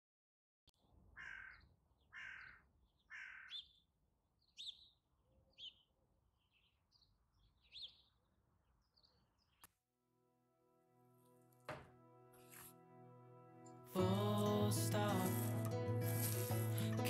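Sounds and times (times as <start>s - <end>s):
small birds chirping: 1.1s - 9.7s
crow cawing: 1.2s - 3.7s.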